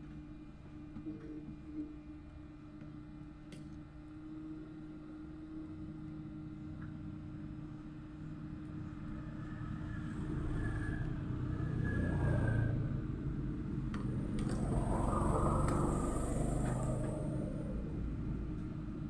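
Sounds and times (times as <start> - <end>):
road traffic rumble: 9.6 - 19.0.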